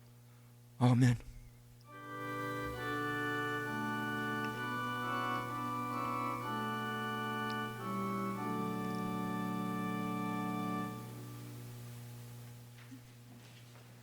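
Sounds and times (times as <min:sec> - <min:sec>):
organ playing slow chords: 0:01.8 - 0:12.7.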